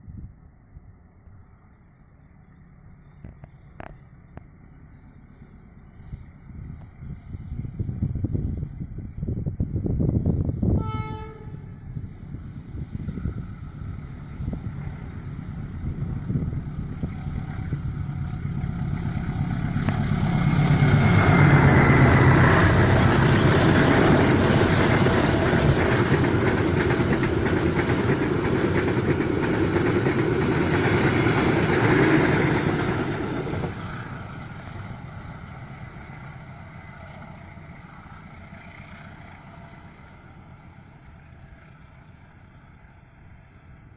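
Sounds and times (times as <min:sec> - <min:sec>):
locomotive engine hum: 0:00.0 - 0:43.9
wheels on rails: 0:12.3 - 0:42.9.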